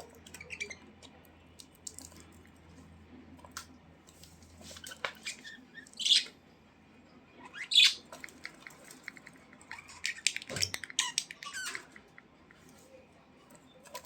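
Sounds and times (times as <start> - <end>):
budgerigars chirping: 5.2 - 6.4, 7.4 - 8.6.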